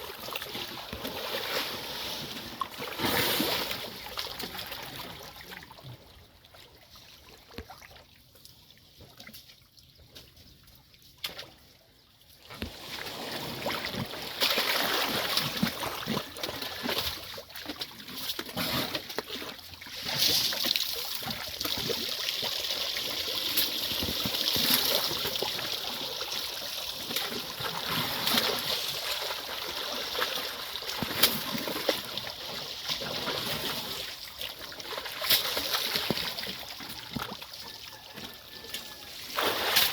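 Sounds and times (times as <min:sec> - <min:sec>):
mud and water splashing: 0:00.0 - 0:39.9.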